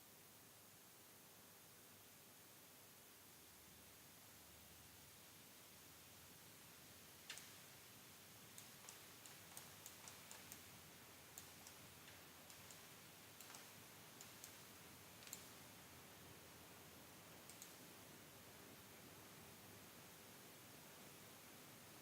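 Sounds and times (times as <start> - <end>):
steady low hiss: 0.0 - 22.0
computer mouse clicks: 7.2 - 7.6, 8.5 - 10.7, 11.3 - 15.6, 17.4 - 17.9.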